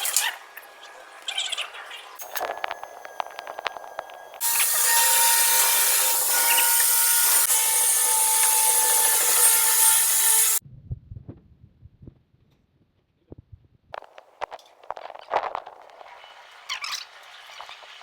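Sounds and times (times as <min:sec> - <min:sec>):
power tool rasping hiss: 0:04.4 - 0:10.6.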